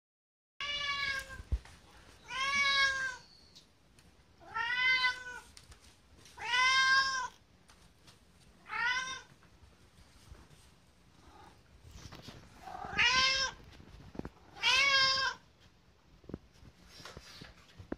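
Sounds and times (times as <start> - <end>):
cat meowing: 0.6 - 1.5, 2.2 - 3.4, 4.4 - 5.4, 6.4 - 7.4, 8.6 - 9.3, 12.6 - 13.6, 14.5 - 15.4.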